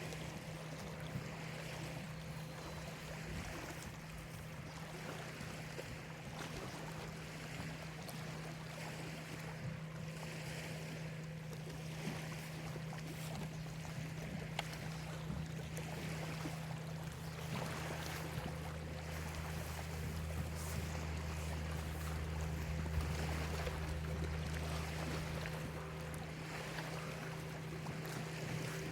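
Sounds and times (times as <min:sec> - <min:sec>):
steady low hum: 0:00.0 - 0:28.9
waves lapping on shore: 0:00.0 - 0:28.9.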